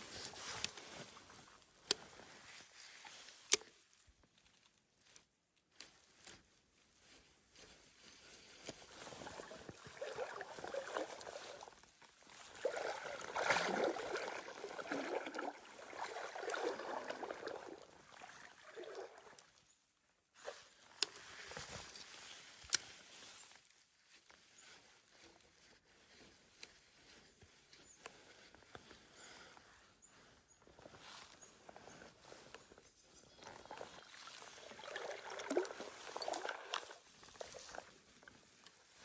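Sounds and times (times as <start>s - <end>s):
water sloshing and splashing: 8.9s - 19.6s, 33.4s - 38.3s.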